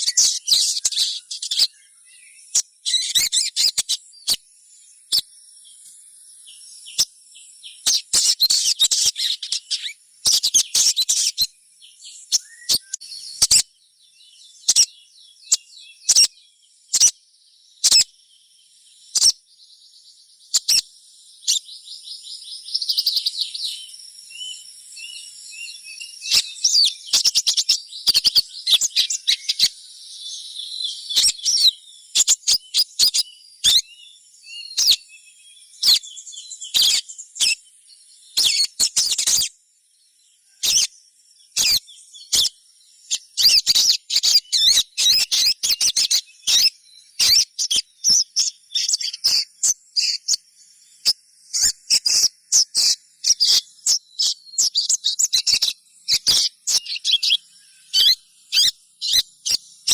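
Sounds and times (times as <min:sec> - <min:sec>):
high-pitched bird chirps: 0:00.0 - 0:01.8, 0:02.4 - 0:05.3, 0:06.8 - 0:13.7, 0:14.6 - 0:16.3, 0:16.9 - 0:17.2, 0:17.8 - 0:18.1, 0:19.1 - 0:19.4, 0:20.5 - 0:21.7, 0:22.6 - 0:23.6, 0:24.3 - 0:29.8, 0:30.6 - 0:33.9, 0:34.6 - 0:35.1, 0:35.8 - 0:37.6, 0:38.4 - 0:39.5, 0:40.6 - 0:40.9, 0:41.5 - 0:50.4, 0:51.0 - 0:59.9.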